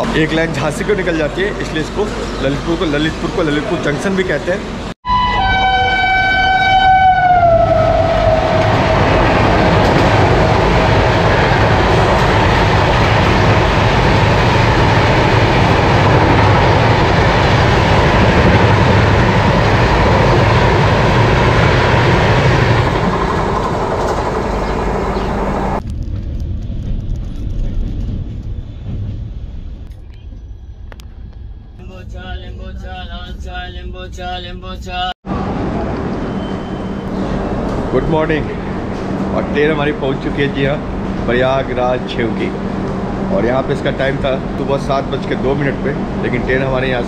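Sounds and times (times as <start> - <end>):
train rushing past: 0.0 - 26.2, 26.8 - 47.0
train horn: 5.0 - 9.4.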